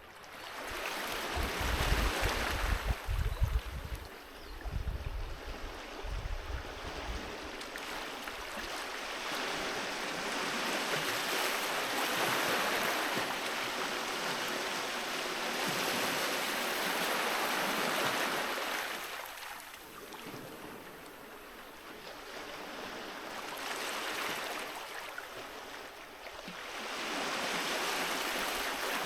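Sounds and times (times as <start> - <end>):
surf washing up a beach: 0.0 - 29.0.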